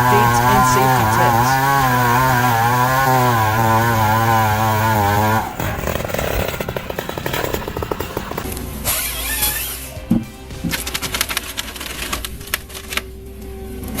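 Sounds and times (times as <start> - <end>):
chainsaw engine running: 0.0 - 9.8
crackling and clattering: 5.3 - 8.8, 10.6 - 13.1.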